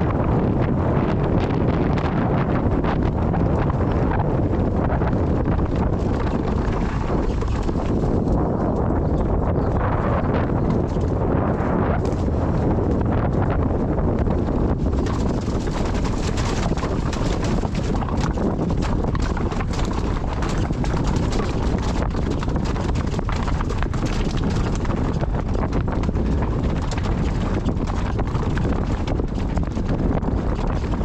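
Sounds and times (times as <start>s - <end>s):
wind buffeting microphone: 0.0s - 31.0s
rapid clattering knocks: 5.6s - 8.3s, 14.8s - 31.0s.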